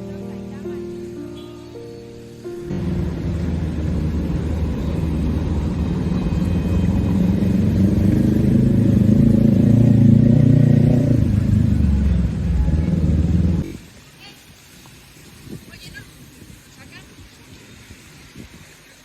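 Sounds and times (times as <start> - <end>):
vehicle engine running: 2.7 - 13.7.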